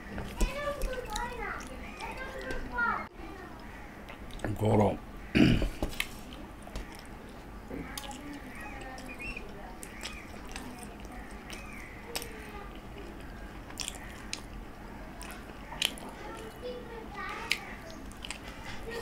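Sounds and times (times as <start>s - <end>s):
person chewing food: 3.6s - 4.5s, 5.7s - 9.2s, 9.8s - 16.6s, 17.2s - 19.0s
wet mouth smacks: 13.7s - 14.5s.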